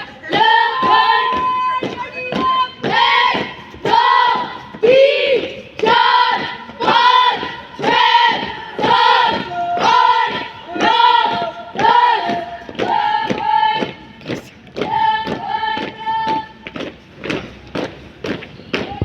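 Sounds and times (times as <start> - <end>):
group chanting in unison: 2.9 - 14.0.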